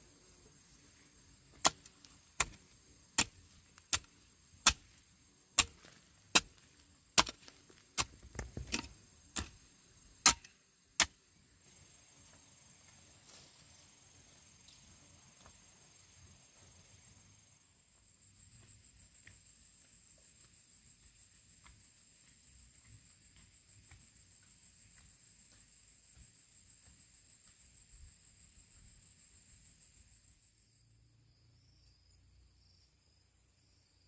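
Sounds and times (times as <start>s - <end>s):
sharp chopping strikes: 1.6s - 2.6s, 3.2s - 5.0s, 5.6s - 9.6s, 10.2s - 11.2s.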